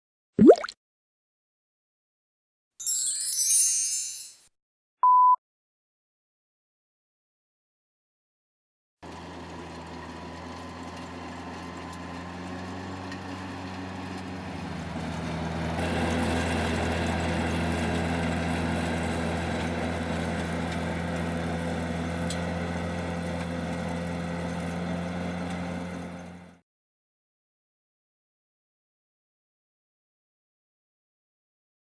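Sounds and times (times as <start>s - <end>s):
tractor engine running: 9.1s - 26.5s.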